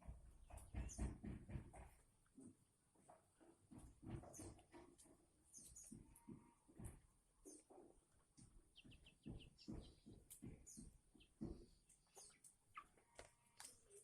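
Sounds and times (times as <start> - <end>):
soft knocks: 0.0 - 2.5, 7.7 - 11.8
songbirds chirping: 0.0 - 14.0.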